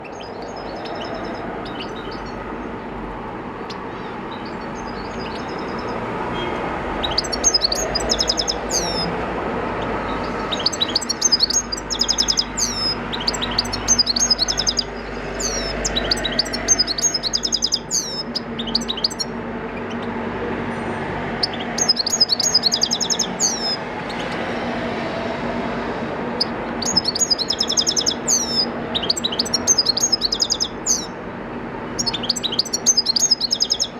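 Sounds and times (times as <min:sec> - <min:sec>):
goldfinch singing twitter: 0:00.0 - 0:09.2, 0:09.8 - 0:20.1, 0:21.4 - 0:24.2, 0:26.4 - 0:31.2, 0:31.9 - 0:33.9.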